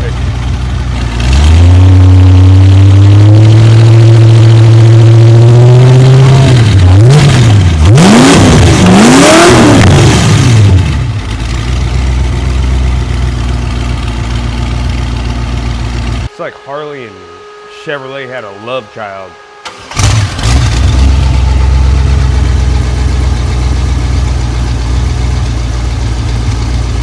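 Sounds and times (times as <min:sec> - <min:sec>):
engine revving and idling: 0:00.0 - 0:27.0.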